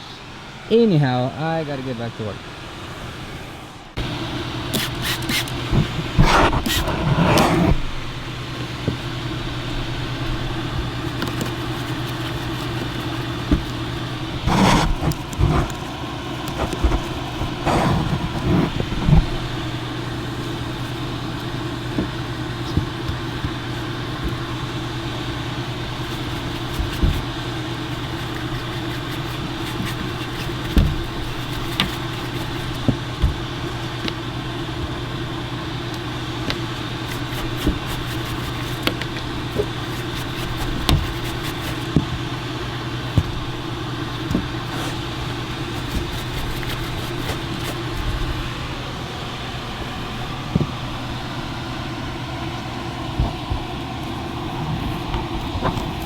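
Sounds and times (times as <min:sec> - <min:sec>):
blower humming: 0:00.0 - 0:56.0
knocks and rustles: 0:04.8 - 0:48.7, 0:49.6 - 0:51.3, 0:53.0 - 0:56.0.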